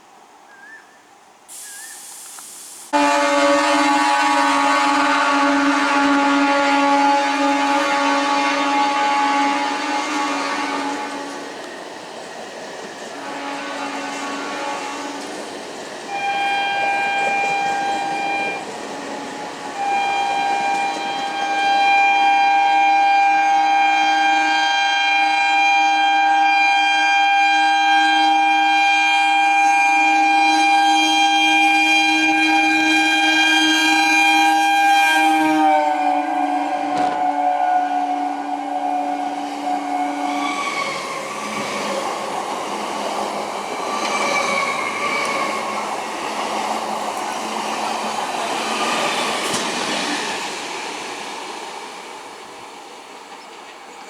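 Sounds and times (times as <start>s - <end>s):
train horn blasts: 2.9s - 11.4s, 13.1s - 15.5s, 16.1s - 41.9s.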